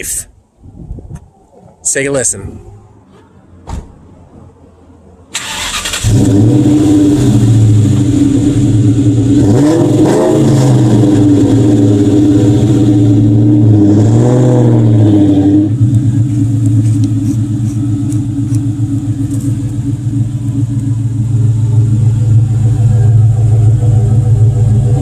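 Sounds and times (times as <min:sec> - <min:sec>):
car engine revving and idling: 0:05.4 - 0:25.0.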